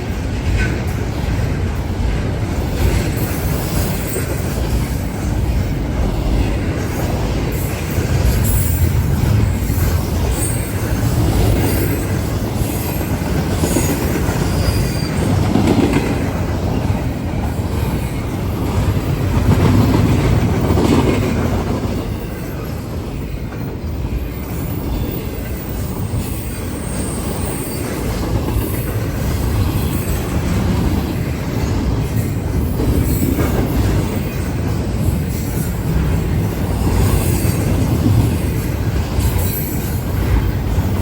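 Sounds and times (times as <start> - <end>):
freight train rumbling: 0.0 - 41.0
high wheel squeals: 9.6 - 15.6, 24.2 - 29.2.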